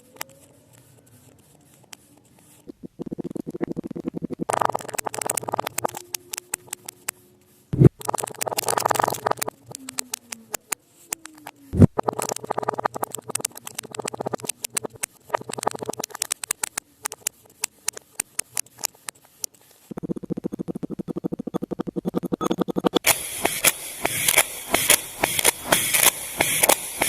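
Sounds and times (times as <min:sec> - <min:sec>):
sharp thumps: 0:07.8 - 0:19.1, 0:19.9 - 0:27.0
blade cutting sand crackling: 0:23.0 - 0:27.0.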